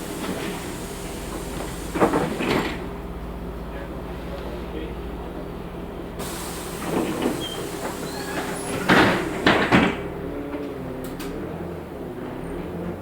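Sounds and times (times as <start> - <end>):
bus doors knocking shut: 0.0 - 3.1, 6.2 - 10.2
bus engine idling: 0.0 - 13.0
air hiss: 6.2 - 9.7.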